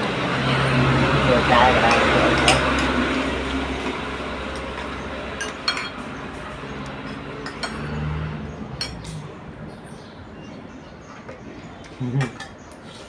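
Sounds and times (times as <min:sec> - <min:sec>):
dishes and cutlery clinking: 0:01.6 - 0:03.2, 0:04.5 - 0:08.2.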